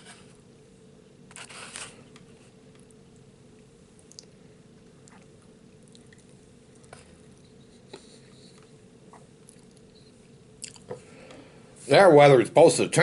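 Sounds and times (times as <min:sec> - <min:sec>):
low room hum: 0:00.0 - 0:13.0
person chewing: 0:03.9 - 0:07.6, 0:08.5 - 0:10.0, 0:10.6 - 0:11.0.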